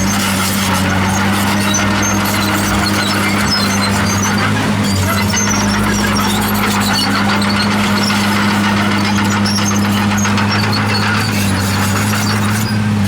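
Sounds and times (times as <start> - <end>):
bulldozer diesel engine running: 0.0 - 13.0
high squeaks from machine: 0.0 - 13.0.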